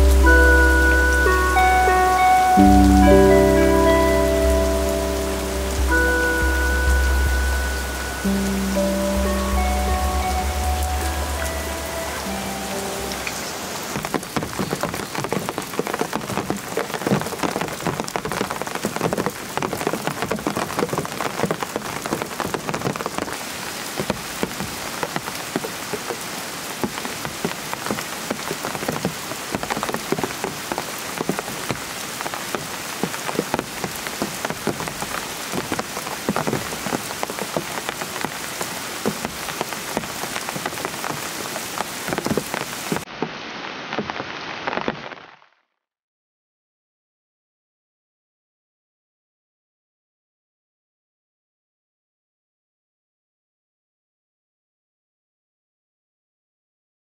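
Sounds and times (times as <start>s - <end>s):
heavy rain falling: 0.0s - 45.3s.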